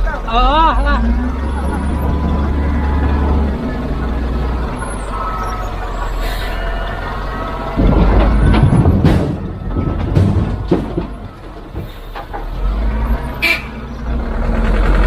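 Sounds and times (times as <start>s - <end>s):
construction machinery engine running: 0.0s - 15.0s
sharp knocks: 7.7s - 12.5s.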